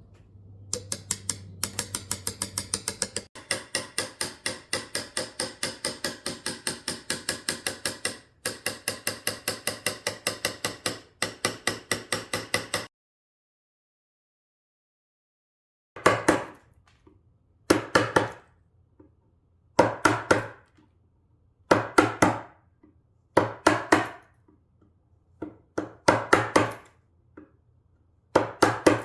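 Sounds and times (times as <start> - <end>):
mallet tapping chisel into wood: 0.7 - 12.9, 23.4 - 24.2, 25.4 - 26.7, 28.3 - 29.0.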